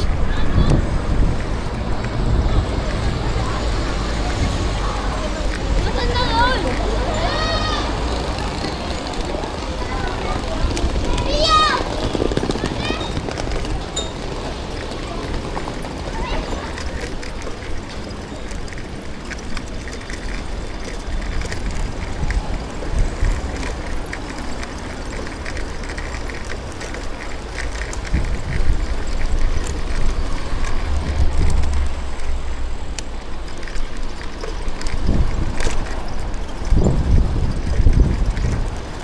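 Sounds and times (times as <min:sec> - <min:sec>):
road noise: 0:00.0 - 0:39.0
wind buffeting microphone: 0:00.0 - 0:39.0
small clicks and rattles: 0:00.6 - 0:39.0.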